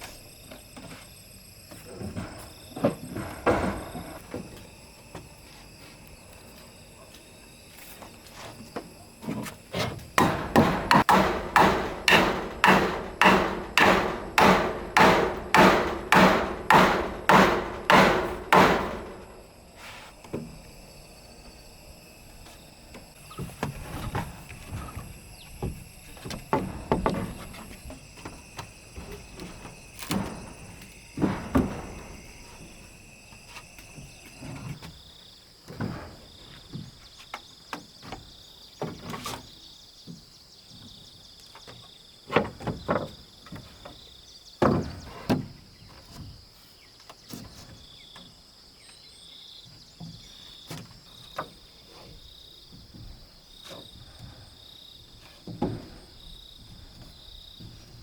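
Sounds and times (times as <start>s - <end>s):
insects chirping: 0.0s - 58.0s
knocks of wooden timber: 2.0s - 4.6s, 8.8s - 19.3s, 23.2s - 32.4s, 41.6s - 44.0s, 44.6s - 46.4s, 55.3s - 58.0s.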